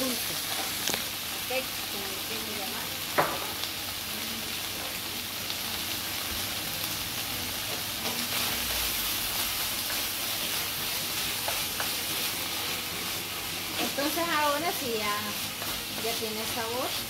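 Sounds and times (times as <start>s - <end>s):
chicken sizzling in a skillet: 0.0s - 17.0s
food being stirred: 7.6s - 17.0s.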